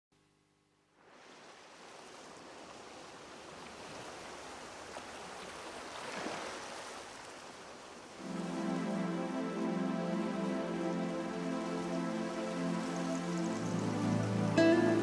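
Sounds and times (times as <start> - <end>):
rushing water: 1.0 - 15.0
background music low notes: 8.2 - 15.0.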